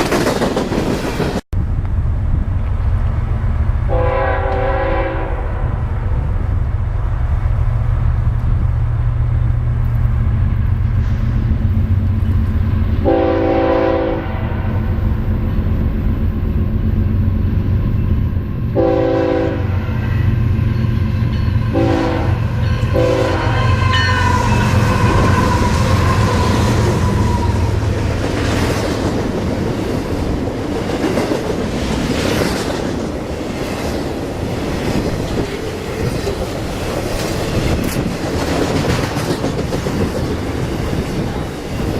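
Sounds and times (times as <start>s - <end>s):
train wheels clacking on rails: 0.0s - 1.4s, 20.0s - 41.9s
diesel locomotive droning: 1.6s - 41.9s
train horn blasts: 3.9s - 6.1s, 13.0s - 14.9s, 18.8s - 20.3s, 21.6s - 27.7s.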